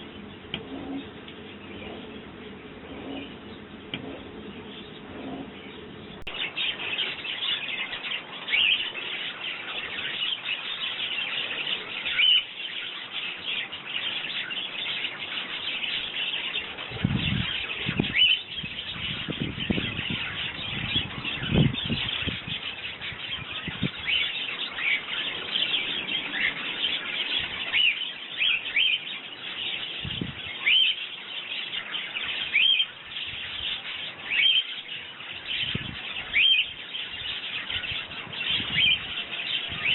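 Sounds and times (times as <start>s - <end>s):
low rumbles: 0.0s - 6.8s
sparrows chirping: 0.0s - 39.9s.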